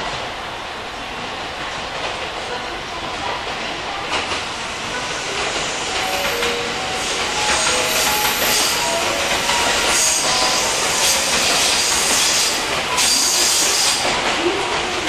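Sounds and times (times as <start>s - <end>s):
train wheels clicking over rail joints: 3.2s - 15.0s
wheels squealing: 5.0s - 14.3s.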